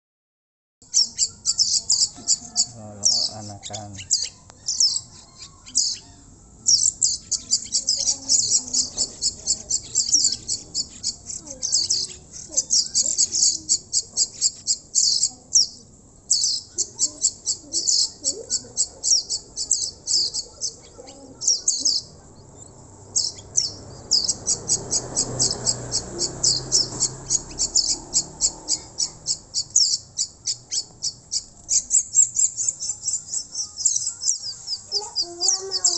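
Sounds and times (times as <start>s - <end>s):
baby birds begging chirps: 0.8s - 35.9s.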